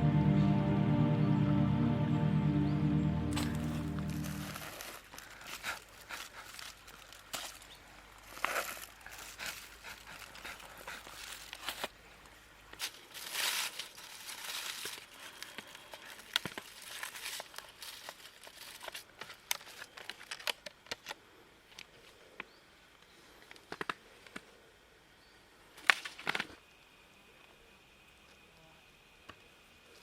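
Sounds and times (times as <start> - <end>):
wrapper crinkling and rustling: 3.4 - 12.0, 12.8 - 21.2.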